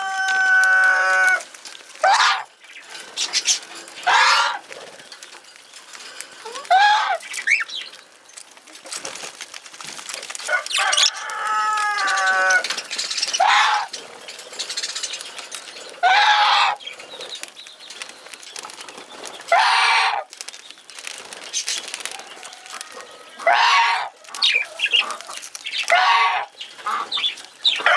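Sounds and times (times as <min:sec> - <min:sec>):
budgerigars squawking: 0:13.1 - 0:13.9, 0:16.0 - 0:16.8.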